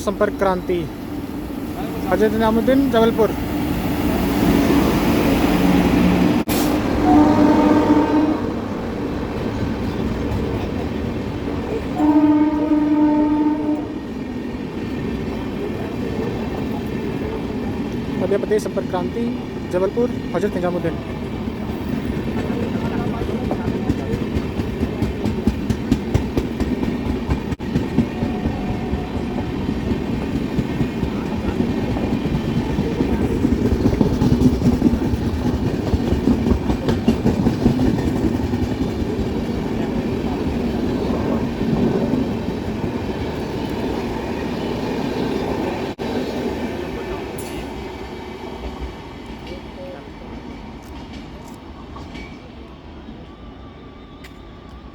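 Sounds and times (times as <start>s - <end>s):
train rumble: 0.0s - 54.9s
train wheels clattering over rail joints: 21.7s - 39.6s.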